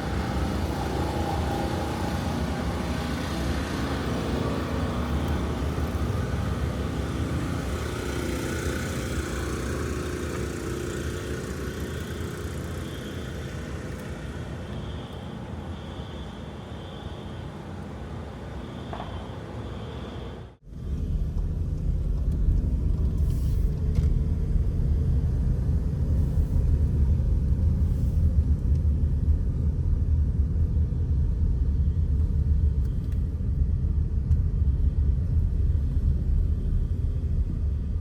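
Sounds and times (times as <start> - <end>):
low rumble: 20.6 - 38.0.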